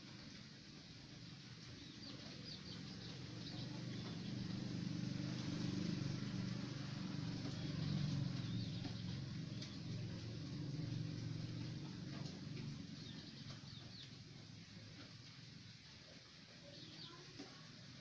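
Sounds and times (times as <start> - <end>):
faint high bird chirps: 16.6 - 17.6.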